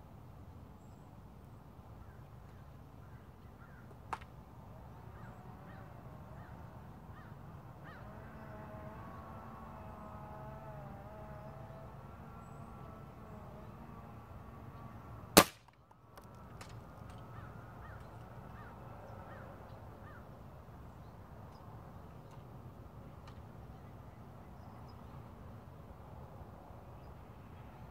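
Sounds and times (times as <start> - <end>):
wind: 0.0 - 27.9
birds calling: 2.0 - 15.5, 16.3 - 22.4
air rifle shot: 15.4 - 15.8.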